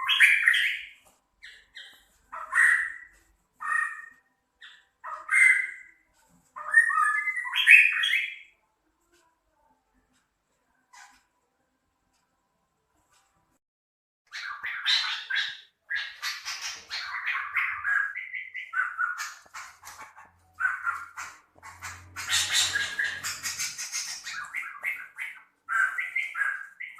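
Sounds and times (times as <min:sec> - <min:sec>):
songbird singing harsh rapid phrases: 0:00.0 - 0:06.0, 0:06.6 - 0:08.6, 0:14.3 - 0:26.9.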